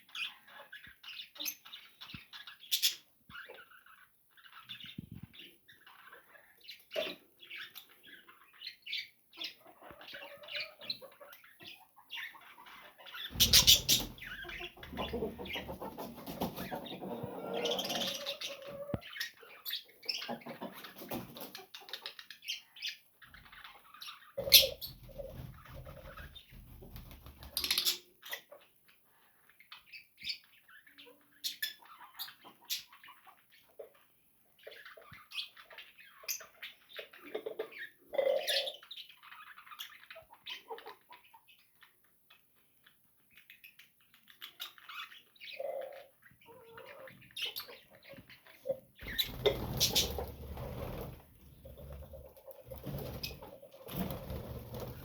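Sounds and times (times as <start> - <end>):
parrots chirping and squawking: 0.1 - 25.0, 29.3 - 41.9, 43.3 - 55.0
wings fluttering: 13.3 - 16.9, 49.0 - 55.0.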